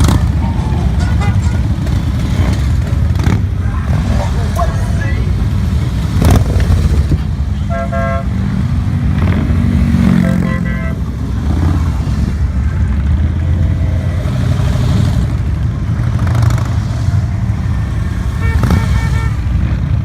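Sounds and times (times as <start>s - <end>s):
motorcycle engines rumbling: 0.0s - 20.0s
horn toots: 0.7s - 2.7s, 7.6s - 8.4s, 10.0s - 11.7s, 18.2s - 19.8s.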